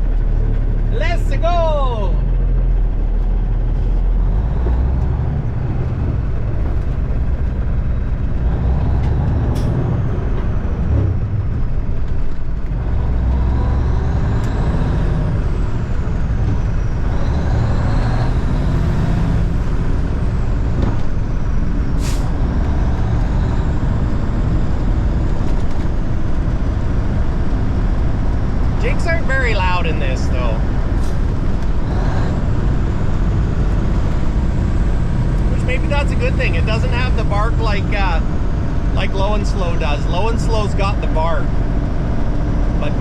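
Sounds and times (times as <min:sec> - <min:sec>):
diesel truck engine under load: 0:00.0 - 0:43.0
high gear whine: 0:28.6 - 0:43.0.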